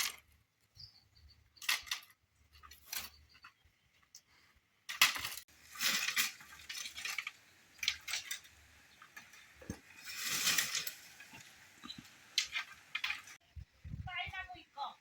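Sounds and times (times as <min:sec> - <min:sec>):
scraping of pots: 0:04.9 - 0:13.4.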